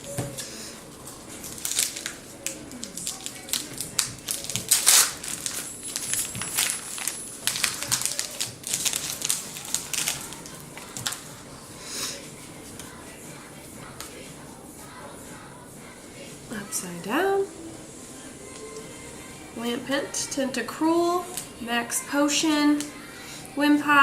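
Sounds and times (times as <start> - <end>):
foil wrapper crinkling and tearing: 1.3 - 11.3.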